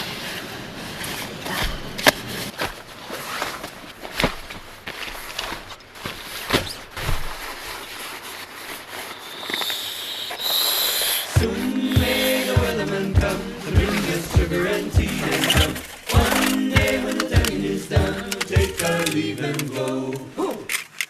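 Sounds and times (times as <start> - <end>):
gear rustling: 13.9 - 21.0
camping gear clicks and knocks: 15.0 - 21.0.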